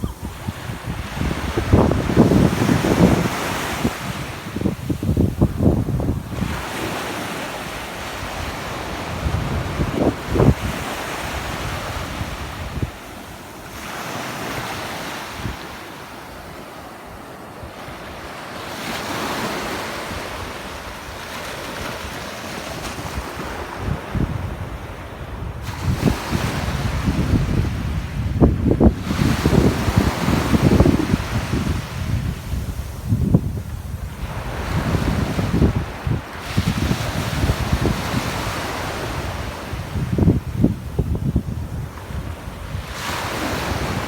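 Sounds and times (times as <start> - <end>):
wind buffeting microphone: 0.0 - 13.1, 22.9 - 44.0
sea waves breaking: 0.0 - 28.1, 28.7 - 44.0.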